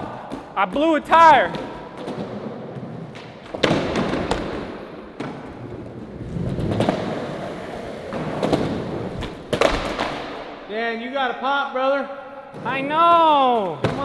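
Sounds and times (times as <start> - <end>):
skateboard wheels rolling on pavement: 1.0 - 10.5
skateboard popping and landing: 1.4 - 10.5.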